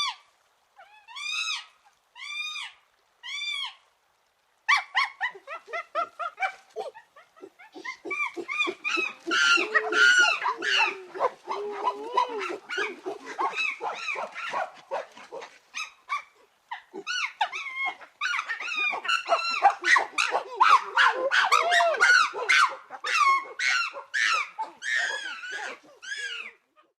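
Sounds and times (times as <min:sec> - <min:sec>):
chimpanzee hooting: 0:05.3 - 0:14.3.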